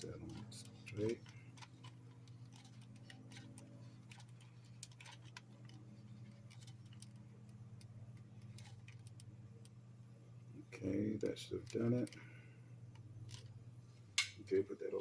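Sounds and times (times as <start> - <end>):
low steady hum: 0.0 - 15.0
small clicks and ticks: 0.1 - 9.8.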